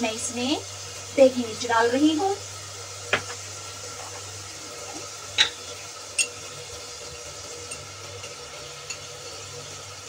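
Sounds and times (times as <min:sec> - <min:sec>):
tomatoes sizzling in hot oil: 0:00.0 - 0:10.0
spoon clicking against pot: 0:06.2 - 0:06.4.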